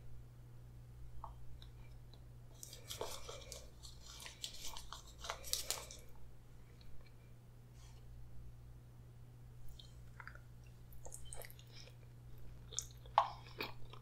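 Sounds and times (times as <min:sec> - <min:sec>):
chewing with wet smacks: 0:09.7 - 0:14.0.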